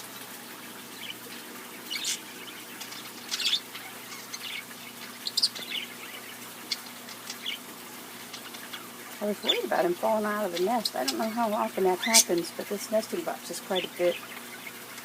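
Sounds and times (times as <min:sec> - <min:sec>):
small birds chirping: 0:00.8 - 0:15.0.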